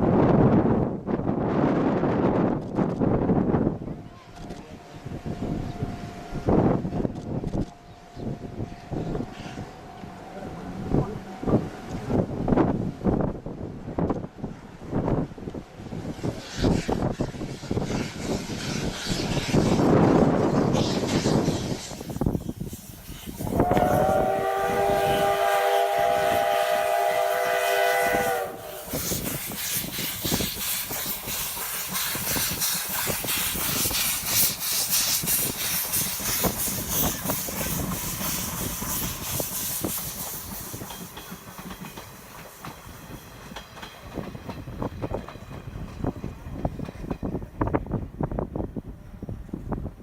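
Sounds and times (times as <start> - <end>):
passing train hiss and clatter: 0.0 - 50.0
steam locomotive whistle: 23.1 - 30.6.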